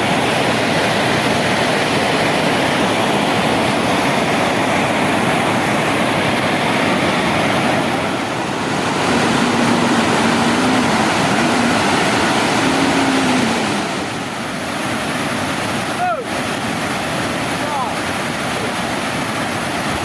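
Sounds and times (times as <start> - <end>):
water pouring over a waterfall: 0.0 - 20.0
faint wavering hum: 6.9 - 14.6.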